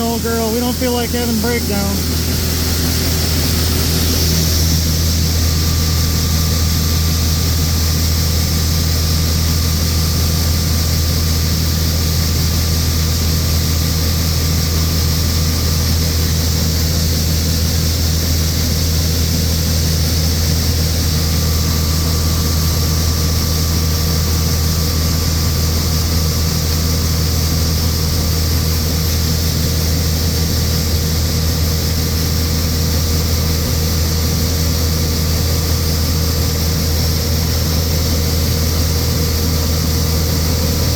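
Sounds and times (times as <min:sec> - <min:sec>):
faint high whine: 0:00.0 - 0:32.4
diesel engine running: 0:00.0 - 0:40.9.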